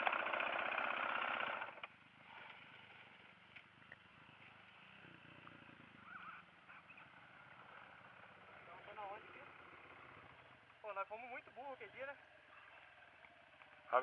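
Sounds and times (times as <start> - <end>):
dirt bike engine idling: 0.0 - 14.0
faint clicks: 3.5 - 4.6.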